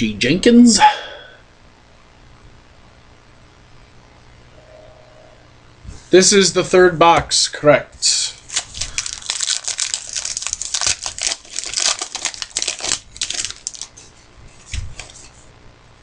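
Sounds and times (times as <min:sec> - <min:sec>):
wrapper crinkling and tearing: 0:08.4 - 0:14.0.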